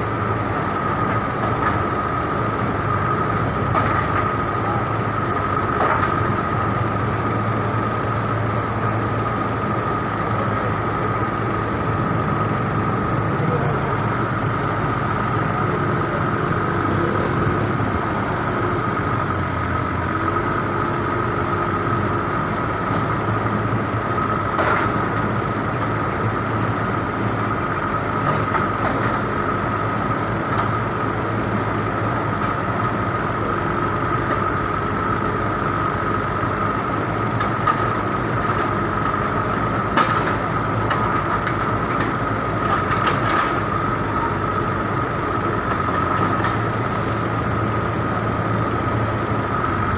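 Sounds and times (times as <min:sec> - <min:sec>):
road noise: 0:00.0 - 0:49.9
vehicle engine running: 0:00.0 - 0:49.9.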